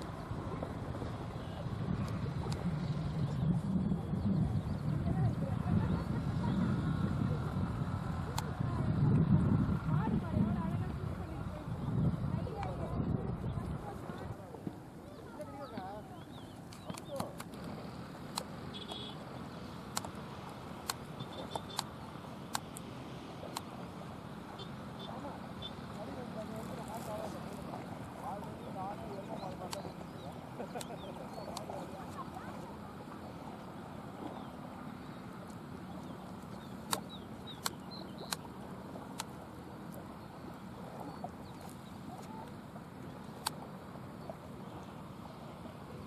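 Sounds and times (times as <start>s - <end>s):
low background rumble: 0.0s - 46.0s
steady outdoor noise: 0.0s - 46.0s
small birds chirping: 15.1s - 17.6s, 20.8s - 22.9s, 24.3s - 46.0s
sharp clicks: 16.7s - 19.1s, 19.9s - 23.7s, 36.4s - 40.0s, 43.4s - 43.6s.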